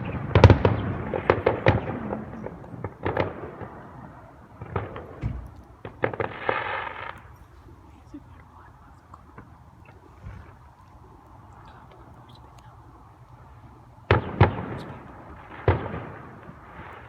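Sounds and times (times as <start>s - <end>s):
fireworks bangs and crackles: 0.0s - 8.6s, 13.4s - 17.0s.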